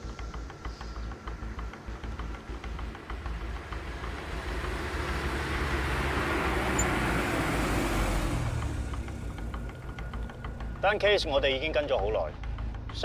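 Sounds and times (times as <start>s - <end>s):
road traffic noise: 0.0s - 13.0s
car passing by: 2.7s - 10.9s.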